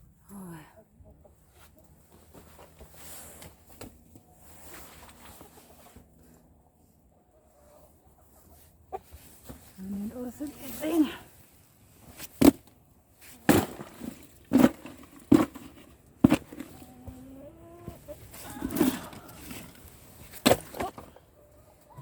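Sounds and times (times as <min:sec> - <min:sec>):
hens calling: 0:16.6 - 0:20.0, 0:20.7 - 0:22.0.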